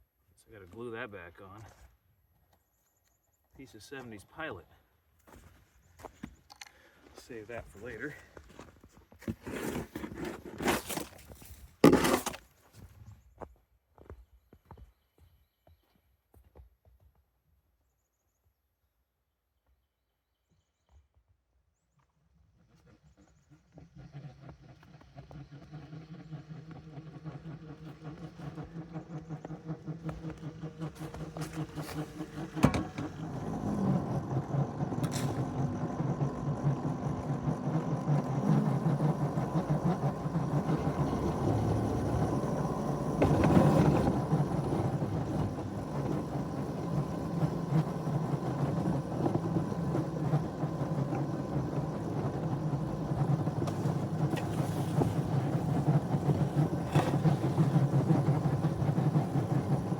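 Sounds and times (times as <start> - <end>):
small engine droning: 3.6 - 12.4, 22.0 - 59.9.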